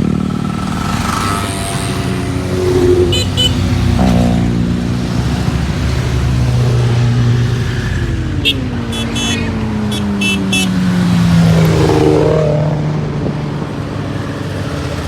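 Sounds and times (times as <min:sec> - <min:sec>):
motorcycle engines revving: 0:00.0 - 0:15.0
short high-pitched chirps: 0:02.9 - 0:03.6.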